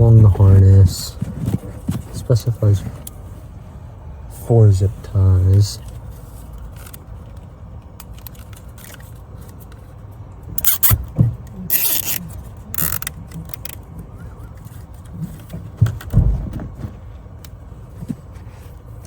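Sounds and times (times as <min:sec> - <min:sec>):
faint handling noise: 0:00.0 - 0:19.0
zip ties ratcheting: 0:10.6 - 0:11.0, 0:11.7 - 0:13.8.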